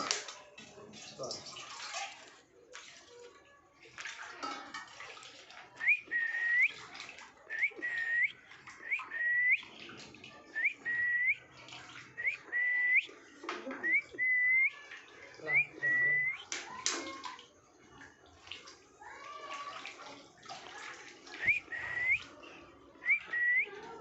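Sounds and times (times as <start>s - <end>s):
short rising whistles: 5.8s - 6.7s, 7.5s - 9.6s, 10.6s - 11.4s, 12.2s - 13.1s, 21.4s - 22.2s, 23.0s - 23.7s.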